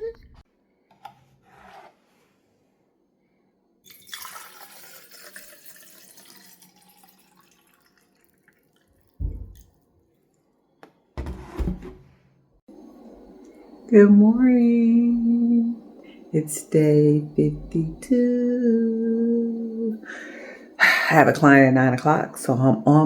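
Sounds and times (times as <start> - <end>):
water running: 3.9 - 9.8, 12.9 - 23.0
dull thumps: 9.2 - 9.6.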